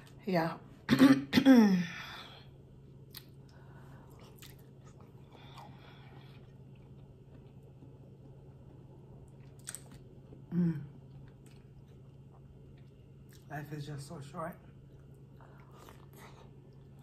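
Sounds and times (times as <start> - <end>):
steady low hum: 0.0 - 17.0
person chewing: 3.0 - 13.5, 14.7 - 17.0.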